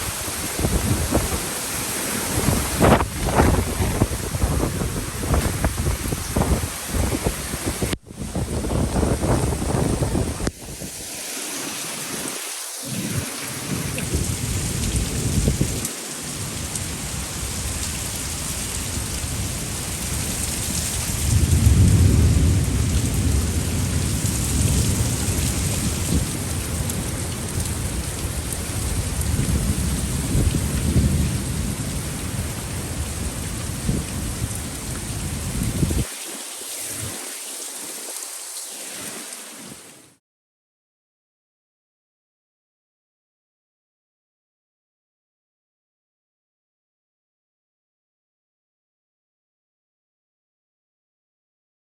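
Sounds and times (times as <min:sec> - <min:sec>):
thunder rumbling: 0:00.0 - 0:01.6, 0:02.2 - 0:10.5, 0:19.1 - 0:36.1
strong wind: 0:00.0 - 0:11.2, 0:12.9 - 0:36.2
heavy rain: 0:00.0 - 0:40.2.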